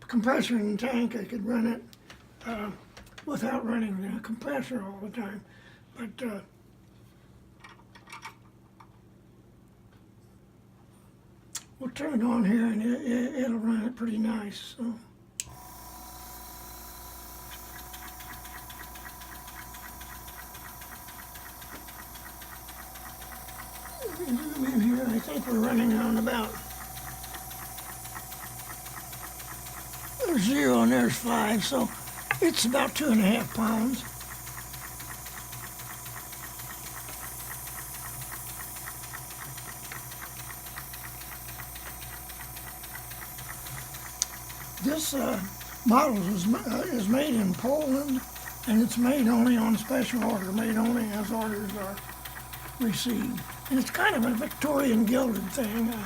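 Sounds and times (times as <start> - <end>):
air compressor humming: 15.4 - 56.0
model engine ticking: 15.4 - 56.0.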